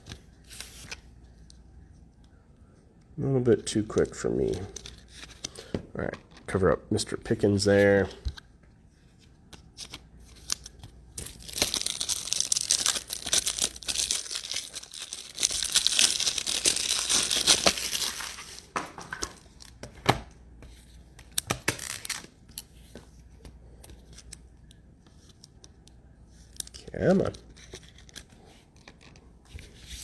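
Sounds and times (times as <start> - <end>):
plastic wrapper tearing and crinkling: 10.3 - 19.8, 21.3 - 22.4.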